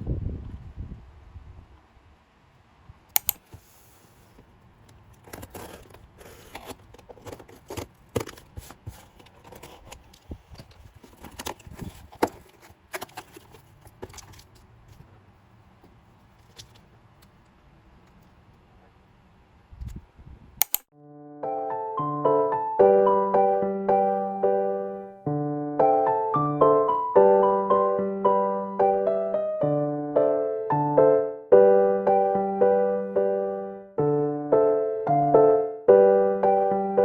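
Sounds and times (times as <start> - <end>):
sharp double click: 3.2 - 3.4, 20.6 - 20.9.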